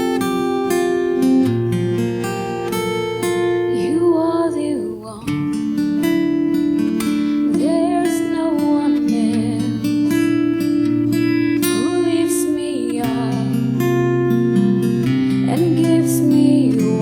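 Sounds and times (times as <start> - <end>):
acoustic guitar chords: 0.0 - 17.0
wordless voice singing: 3.7 - 5.3, 7.5 - 9.8, 11.7 - 13.6, 15.4 - 17.0.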